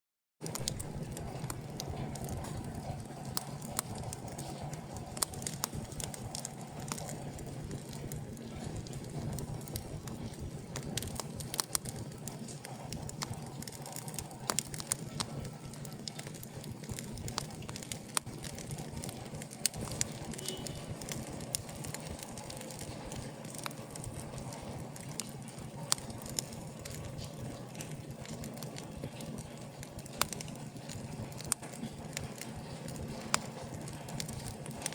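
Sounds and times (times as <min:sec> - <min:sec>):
fire crackling and popping: 0:00.4 - 0:34.9
wood fire burning: 0:00.4 - 0:34.9.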